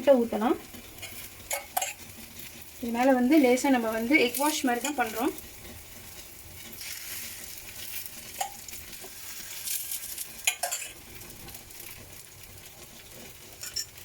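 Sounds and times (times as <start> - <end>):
flatbread sizzling in oil: 0.0 - 14.0
utensil clicking against pan: 8.4 - 9.1.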